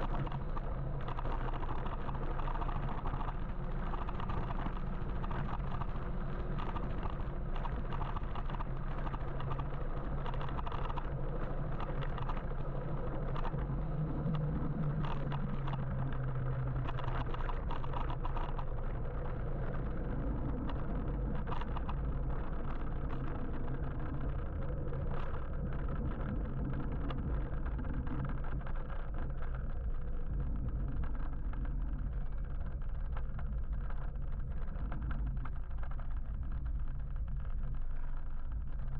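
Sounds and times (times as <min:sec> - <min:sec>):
low motor hum: 0:00.0 - 0:38.9
road and traffic rumble: 0:00.0 - 0:38.9.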